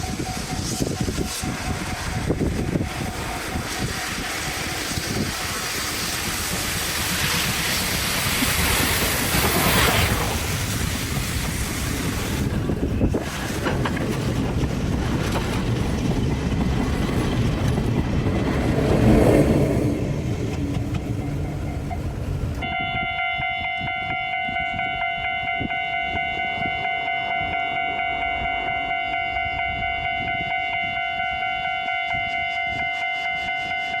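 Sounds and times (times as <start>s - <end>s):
freight train rumble: 0.0s - 34.0s
level crossing warning bell: 21.0s - 34.0s.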